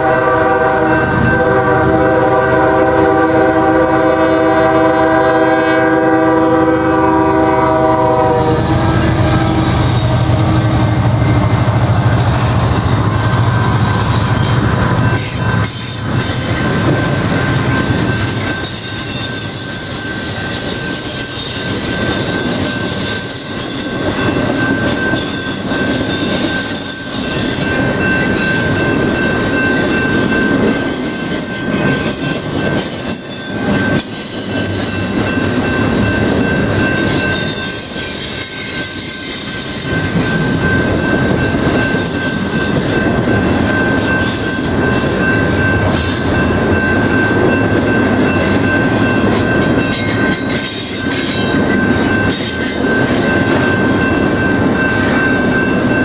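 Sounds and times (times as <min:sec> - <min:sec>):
locomotive engine rumble: 0:06.3 - 0:18.1
high wheel squeal: 0:07.1 - 0:28.7, 0:29.7 - 0:47.5.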